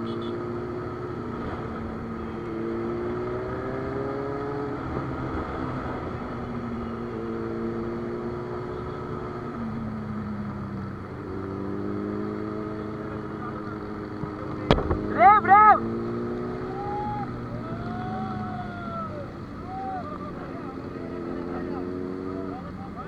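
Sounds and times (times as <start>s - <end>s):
motorcycle engine under load: 0.0s - 16.7s.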